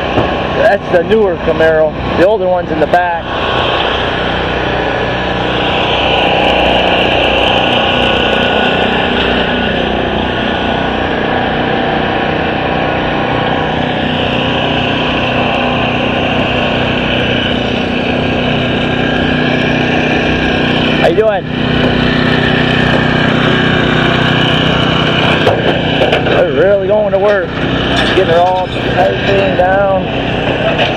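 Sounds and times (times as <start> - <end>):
loud engine din: 0.0 - 30.9.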